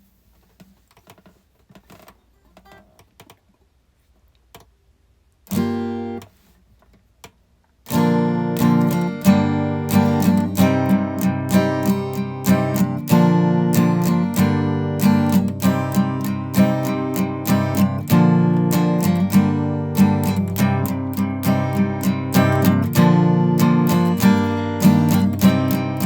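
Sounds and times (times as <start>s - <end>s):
acoustic guitar strumming: 5.5s - 6.2s, 7.9s - 26.0s.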